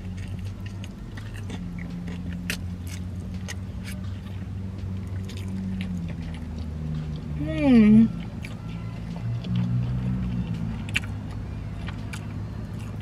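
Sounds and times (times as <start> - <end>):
car engine idling: 0.0 - 13.0
chewing crispy food: 0.0 - 13.0.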